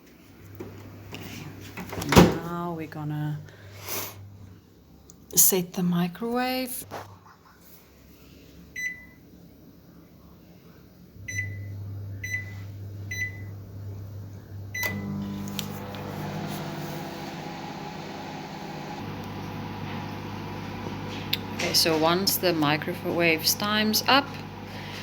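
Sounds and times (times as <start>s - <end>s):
microwave keypad beeps: 8.8s - 9.2s, 11.3s - 12.5s, 13.1s - 13.5s, 14.8s - 15.3s
microwave oven humming: 11.1s - 25.0s.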